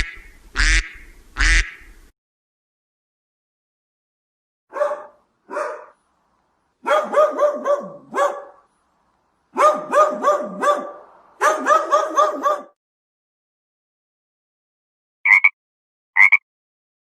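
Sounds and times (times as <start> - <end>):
dog barking: 4.7 - 6.0, 6.8 - 8.7, 9.5 - 12.8.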